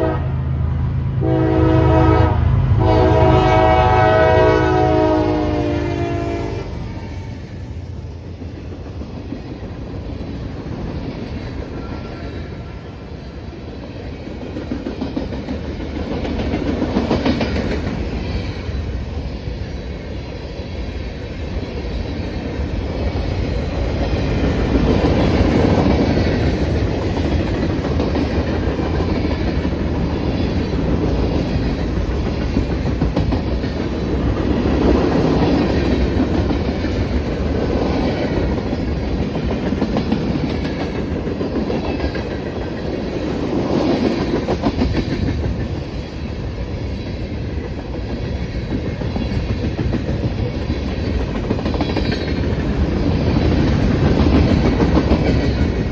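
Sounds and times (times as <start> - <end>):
train rumble: 0.0 - 55.9
train wheels clacking over rail joints: 8.3 - 19.2, 21.5 - 46.2, 47.0 - 55.9.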